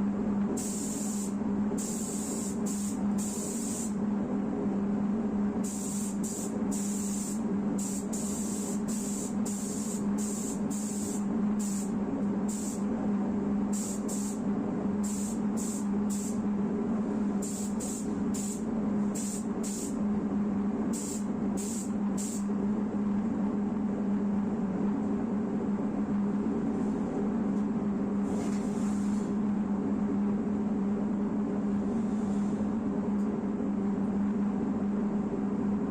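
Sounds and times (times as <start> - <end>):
steady low hum: 0.0 - 35.9
pneumatic gun air bursts: 0.6 - 4.0, 5.6 - 11.9, 12.5 - 12.8, 13.8 - 14.4, 15.0 - 16.4, 17.4 - 20.0, 21.0 - 22.4.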